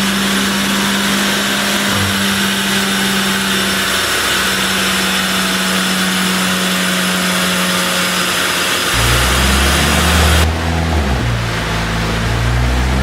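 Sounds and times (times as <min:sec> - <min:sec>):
car engine on dyno: 0:00.0 - 0:13.0
loud hiss: 0:08.1 - 0:10.5.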